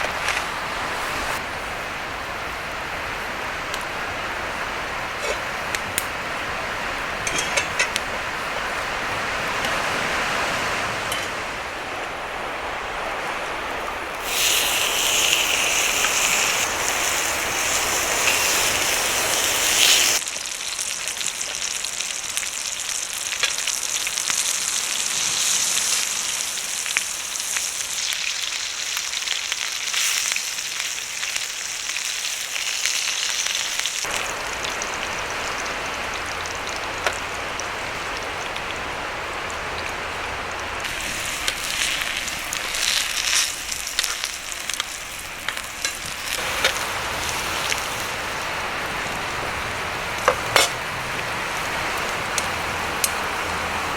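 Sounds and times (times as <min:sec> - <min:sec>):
steady rushing noise: 0:00.0 - 0:14.2
food sizzling in a pan: 0:14.2 - 0:38.0, 0:40.8 - 0:49.6.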